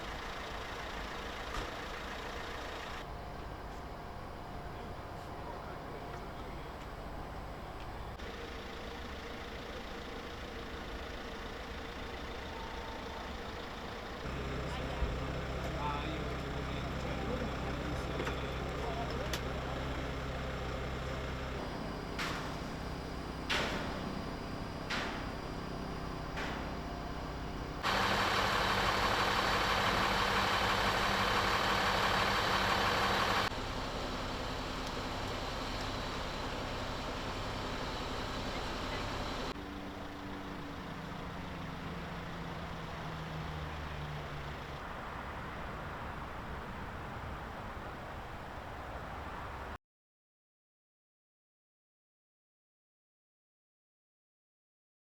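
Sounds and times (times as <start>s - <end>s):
street noise: 0.0s - 49.8s
vehicle engine idling: 0.0s - 49.8s.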